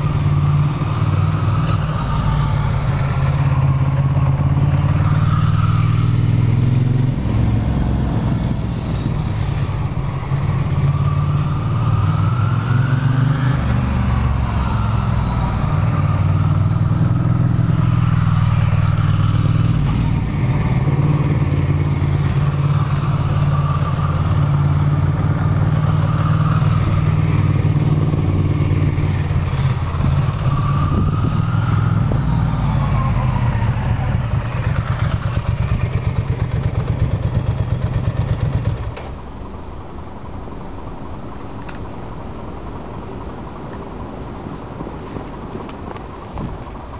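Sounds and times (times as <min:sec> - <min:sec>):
motorcycle engine running: 0:15.6 - 0:32.4, 0:33.8 - 0:39.3.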